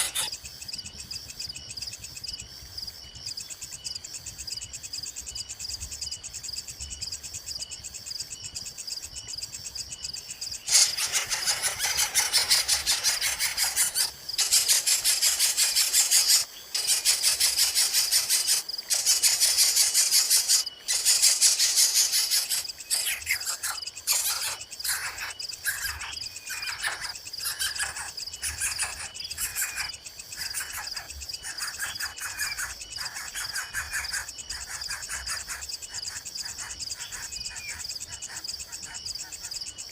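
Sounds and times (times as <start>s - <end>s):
chicks begging calls: 0.0s - 0.3s, 10.7s - 26.0s
insect chirring: 0.0s - 39.9s.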